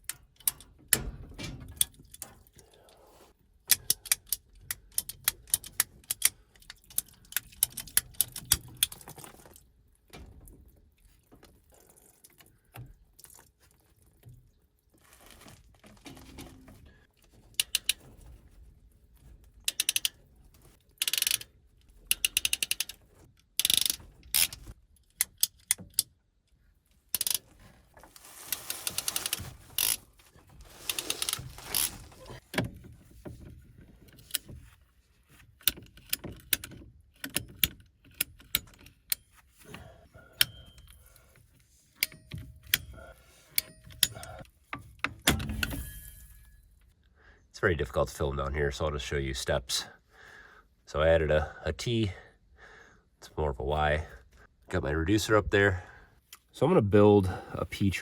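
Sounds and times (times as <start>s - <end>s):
tool clicks and ratchet rattles: 3.7s - 9.7s, 19.5s - 26.2s, 27.1s - 27.4s, 28.5s - 30.0s.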